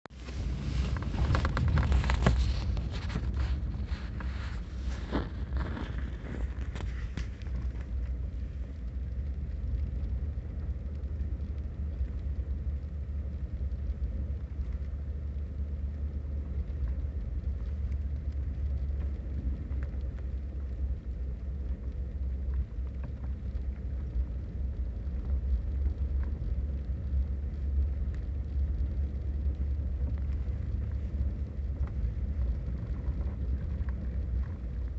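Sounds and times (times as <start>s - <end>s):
storm low rumble: 0.1s - 34.9s.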